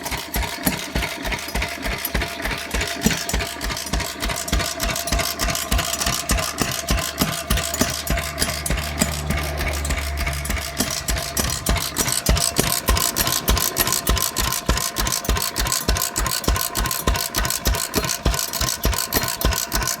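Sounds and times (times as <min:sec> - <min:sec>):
engine exhaust beats: 0:00.0 - 0:20.0
low hum: 0:07.2 - 0:15.1.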